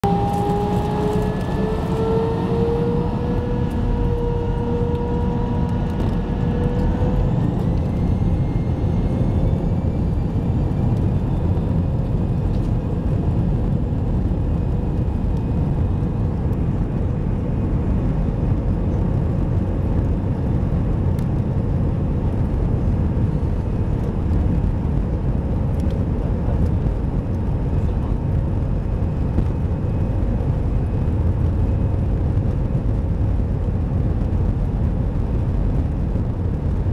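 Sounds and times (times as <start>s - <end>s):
jet engines spooling up: 0.0s - 12.8s.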